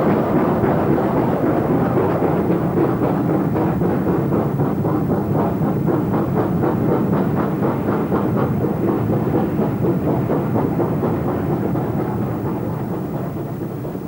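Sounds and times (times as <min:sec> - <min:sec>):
heavy train rumble: 0:00.0 - 0:14.0
steam locomotive exhaust beats: 0:00.0 - 0:14.0.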